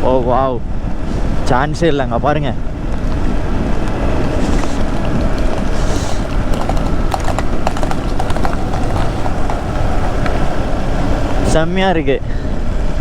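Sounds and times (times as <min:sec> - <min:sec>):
motorcycle noise: 0:00.0 - 0:13.0
wind: 0:00.0 - 0:13.0
horse hooves clip-clopping on road: 0:02.7 - 0:11.8.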